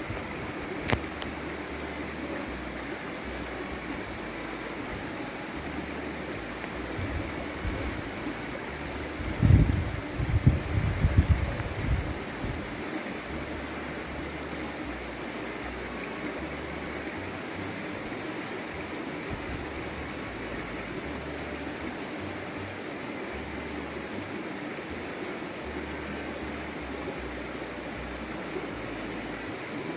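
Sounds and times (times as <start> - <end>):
forest stream flowing: 0.0 - 29.9.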